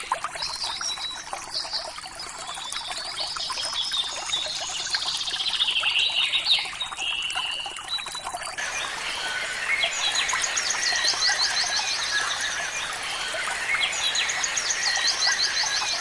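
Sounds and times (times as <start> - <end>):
trickle of running water: 6.9 - 16.0
birds singing and chirping: 8.6 - 16.0.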